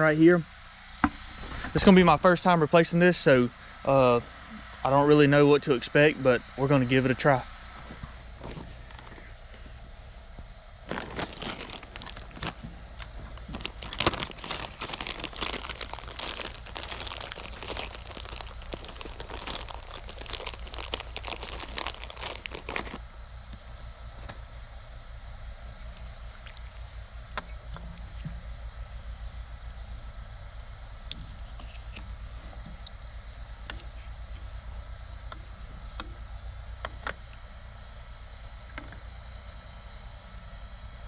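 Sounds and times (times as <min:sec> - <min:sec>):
steady low hum: 0:00.0 - 0:41.0
crinkling and crunching handling: 0:07.8 - 0:09.8, 0:10.8 - 0:24.4, 0:25.6 - 0:28.4.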